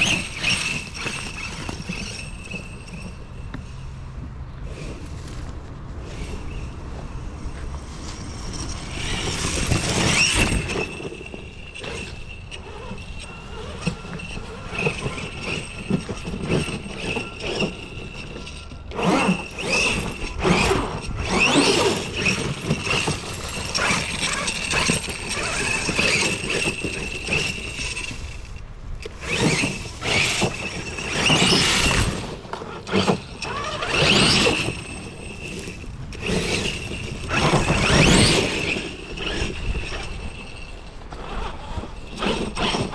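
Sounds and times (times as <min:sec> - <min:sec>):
drivetrain and tyre noise: 0:00.0 - 0:42.9
electric motor whine: 0:29.1 - 0:42.9.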